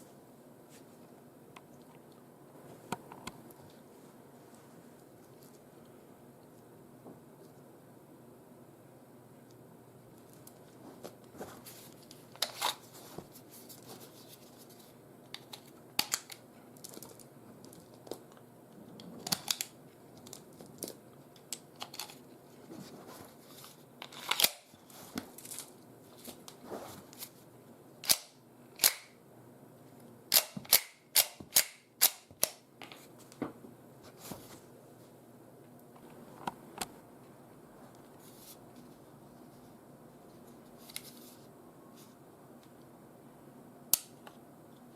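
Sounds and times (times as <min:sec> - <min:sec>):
pistol metallic clicks and snaps: 0:28.0 - 0:29.1.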